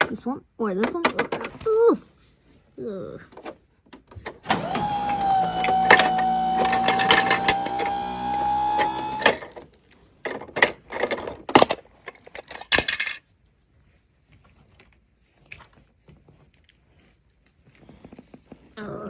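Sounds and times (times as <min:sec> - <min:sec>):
plastic toys clattering: 0:00.8 - 0:01.6, 0:10.3 - 0:13.2.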